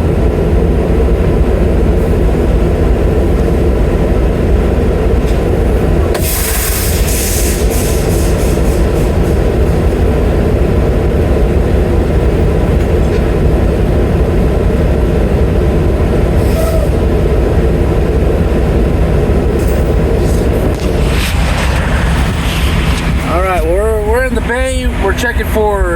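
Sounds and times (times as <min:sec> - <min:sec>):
diesel truck engine rumble: 0:00.0 - 0:25.9
short hissing bursts: 0:06.2 - 0:09.2.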